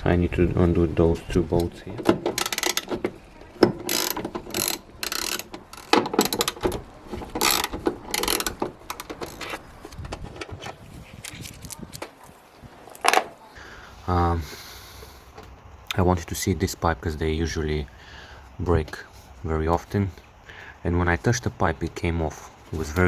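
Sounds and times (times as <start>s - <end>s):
handling sounds: 1.6s - 16.0s, 17.4s - 23.0s
ratchet wrench clicking: 2.4s - 3.0s, 3.8s - 6.7s, 7.4s - 9.6s.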